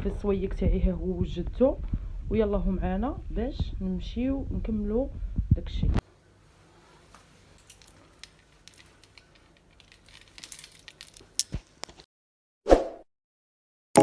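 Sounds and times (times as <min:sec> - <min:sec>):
soft rustling: 0:06.1 - 0:12.0.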